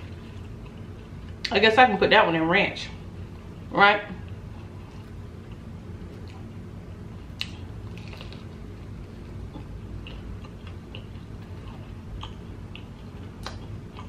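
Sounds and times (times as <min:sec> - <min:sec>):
person chewing: 0:07.4 - 0:14.0.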